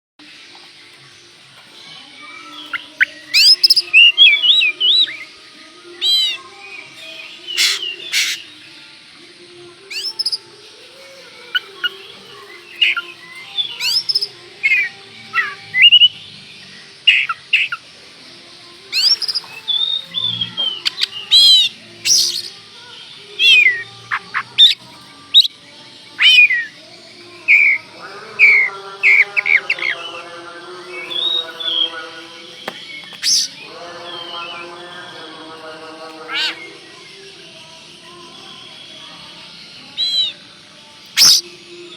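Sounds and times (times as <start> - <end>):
bird singing varied whistles: 32.6 - 33.6, 40.0 - 40.4, 41.2 - 41.5.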